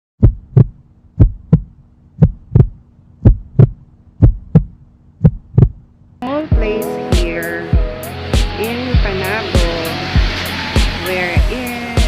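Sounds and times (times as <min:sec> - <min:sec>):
heartbeat thumps: 0:00.2 - 0:05.9
faint steady hum: 0:00.2 - 0:09.1.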